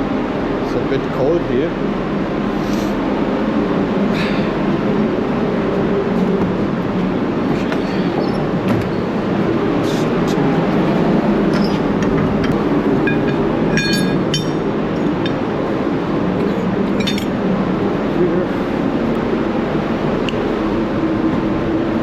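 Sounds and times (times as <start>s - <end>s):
machinery rumble: 0.0s - 22.0s
ringing metal clinks: 12.4s - 15.4s, 17.0s - 17.3s.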